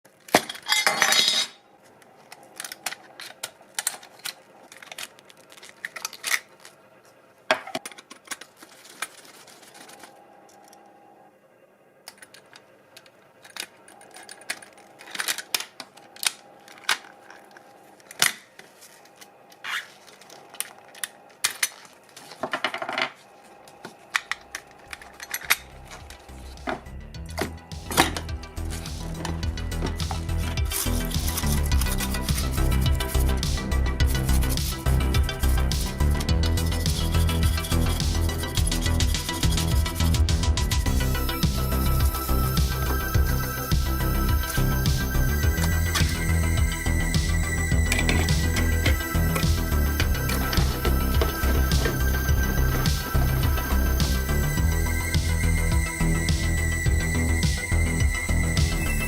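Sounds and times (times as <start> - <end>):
metal and plastic parts clicking: 0.2 - 6.8, 7.5 - 10.8, 12.1 - 23.2, 24.1 - 31.9.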